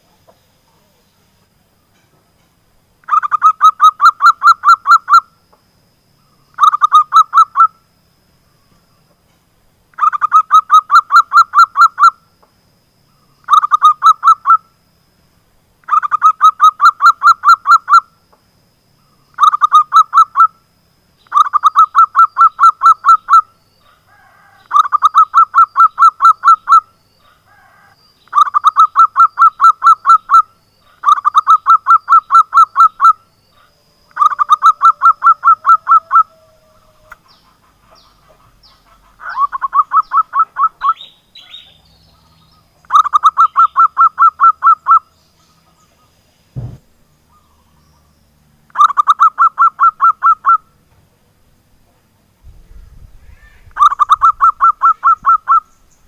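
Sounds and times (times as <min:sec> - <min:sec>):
dove calling in staccato notes: 0:06.5 - 0:07.8, 0:13.4 - 0:14.6, 0:19.3 - 0:20.6, 0:21.2 - 0:46.1, 0:48.7 - 0:50.8, 0:53.4 - 0:55.8.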